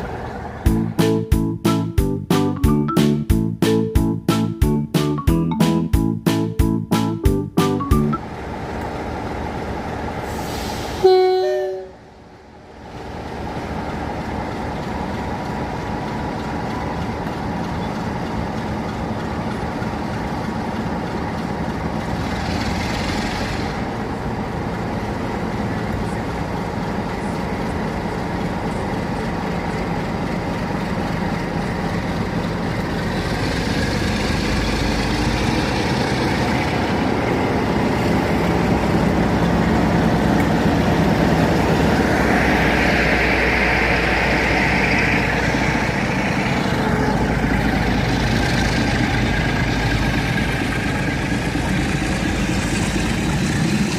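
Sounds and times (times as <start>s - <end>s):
diesel locomotive engine running: 0.0s - 53.9s
locomotive horn blast: 10.3s - 12.1s.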